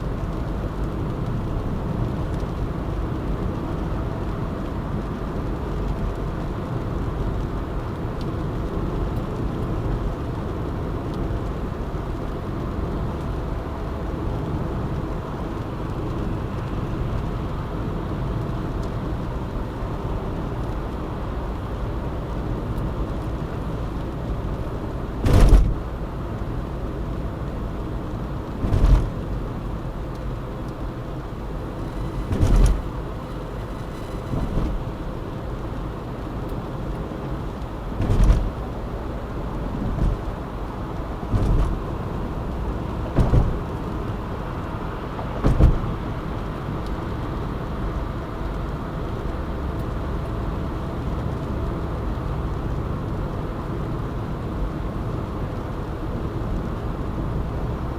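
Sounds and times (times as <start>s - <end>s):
car road noise: 0.0s - 57.9s
short sharp thumps: 25.2s - 25.8s, 32.2s - 32.9s, 41.3s - 41.8s, 43.2s - 43.6s.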